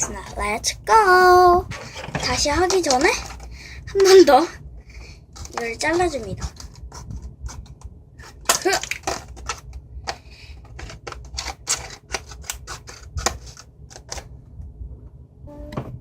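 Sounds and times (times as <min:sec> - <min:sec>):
short vocal sound: 0:15.5 - 0:16.0.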